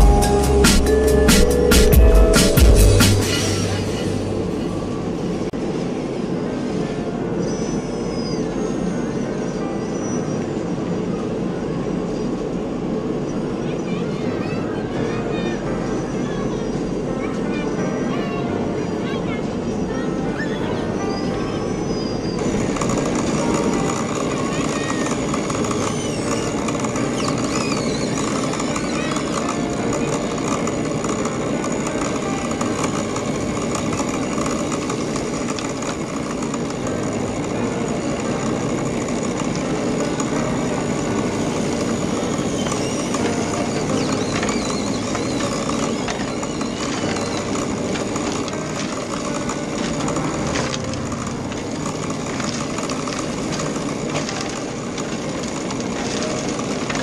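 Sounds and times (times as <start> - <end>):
steady background din: 0.0 - 57.0
small electric motors whining: 21.9 - 57.0.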